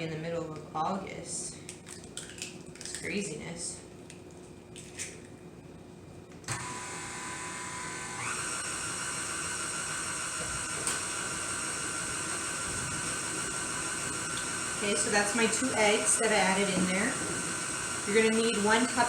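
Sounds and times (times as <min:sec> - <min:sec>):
stand mixer motor whining: 0:06.5 - 0:19.0.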